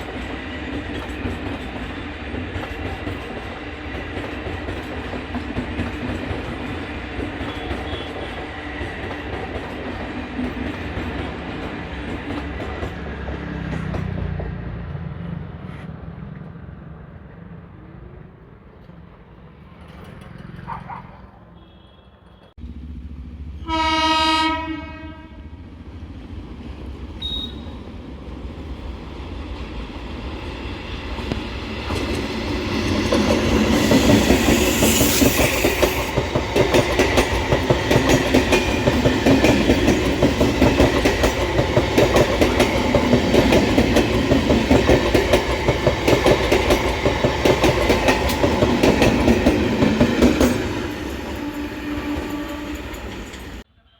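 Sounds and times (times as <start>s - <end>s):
train horn blast: 7.4s - 8.4s, 23.6s - 25.5s, 51.2s - 53.9s.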